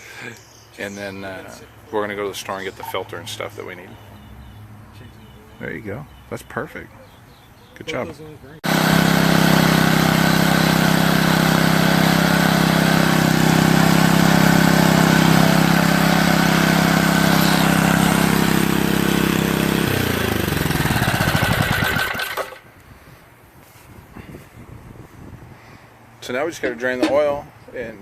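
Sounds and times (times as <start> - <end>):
small engine running: 8.6 - 22.6.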